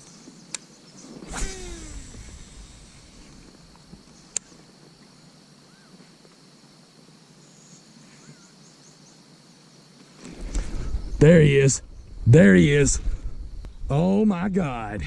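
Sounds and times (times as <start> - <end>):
faint bird calls: 0.0 - 6.2, 7.4 - 9.3
insect chirping: 0.0 - 15.0
sharp click: 4.3 - 4.5.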